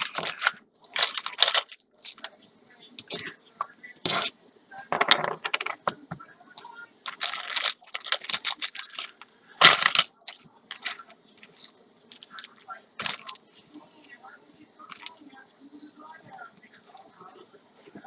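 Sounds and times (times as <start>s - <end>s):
packaging crinkling: 0.0s - 2.3s, 7.0s - 13.4s, 14.9s - 15.2s
packaging crunch: 0.0s - 2.3s, 7.1s - 13.4s, 14.9s - 15.2s.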